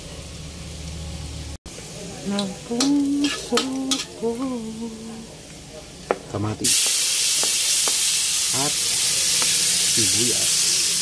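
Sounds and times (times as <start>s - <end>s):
loud sizzle: 0.0s - 11.0s
metal spoon scraping a wok: 2.4s - 4.2s
food frying gently in oil: 6.6s - 11.0s.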